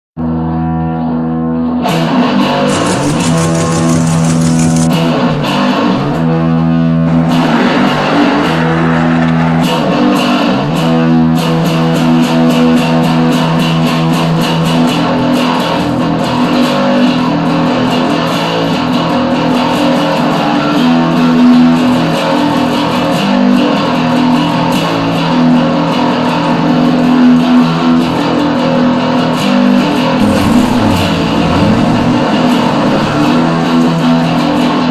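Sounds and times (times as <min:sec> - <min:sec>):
bass: 0:00.2 - 0:34.9
distorted electric guitar: 0:02.5 - 0:05.1, 0:30.2 - 0:34.4.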